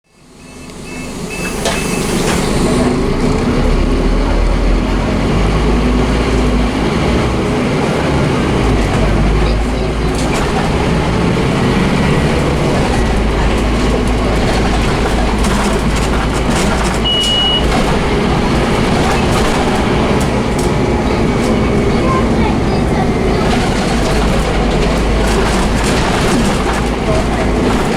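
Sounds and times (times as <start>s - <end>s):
bus diesel engine under load: 0.0s - 27.9s
high beep: 0.4s - 2.3s, 17.0s - 17.7s.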